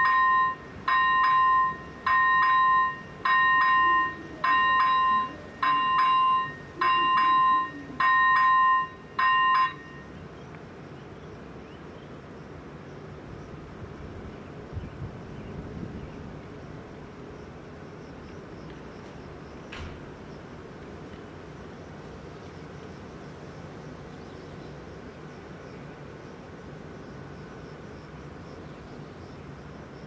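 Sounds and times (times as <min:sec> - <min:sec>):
two-pitched warning bell ringing: 0:00.0 - 0:10.2.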